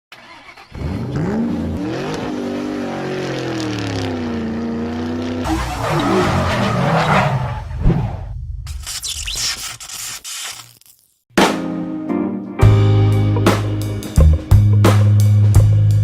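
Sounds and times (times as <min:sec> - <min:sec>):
car engine revving: 0:00.3 - 0:08.2.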